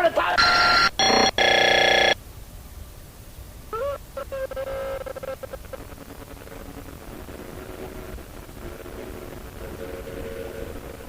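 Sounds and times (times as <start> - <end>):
low hiss: 0.0 - 11.0
loud electronic tone: 0.4 - 2.2.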